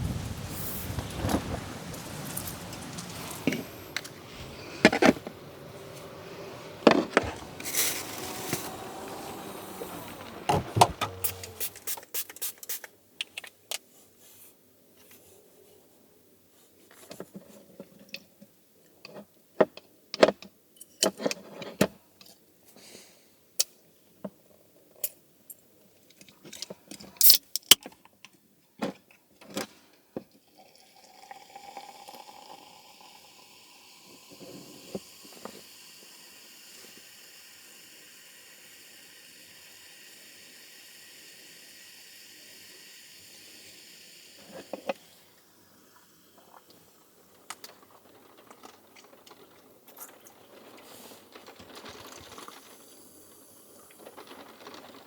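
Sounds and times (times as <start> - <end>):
liquid pouring: 30.6 - 35.3.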